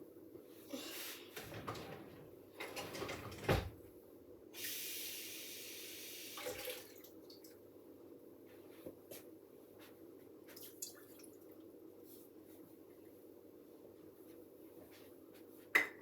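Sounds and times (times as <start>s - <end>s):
kitchen tap running: 6.2s - 7.2s.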